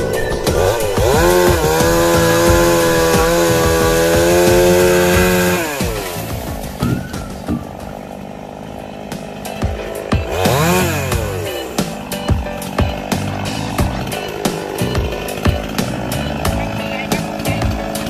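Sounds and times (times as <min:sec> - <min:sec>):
background music with a beat: 0:00.0 - 0:18.0
chainsaw revving: 0:00.0 - 0:18.0.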